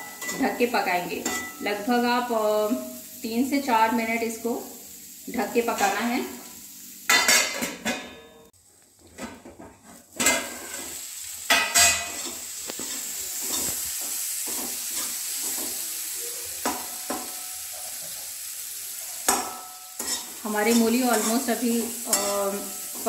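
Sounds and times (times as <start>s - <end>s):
metal clanks on a pan: 0.0s - 0.5s, 1.2s - 1.7s, 7.1s - 8.5s, 9.2s - 10.8s, 11.5s - 15.8s, 16.6s - 18.2s, 19.3s - 21.5s, 22.1s - 23.0s
vegetables sizzling in a pan: 0.0s - 23.0s.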